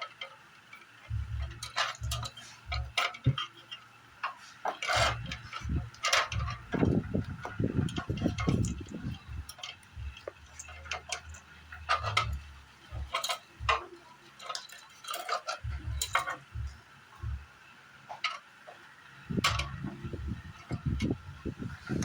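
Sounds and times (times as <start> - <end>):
tools clicking and knocking: 0.0 - 17.5, 19.3 - 22.0
low bumps and rubbing: 1.1 - 3.4, 4.9 - 13.8, 15.6 - 17.5, 19.2 - 22.0.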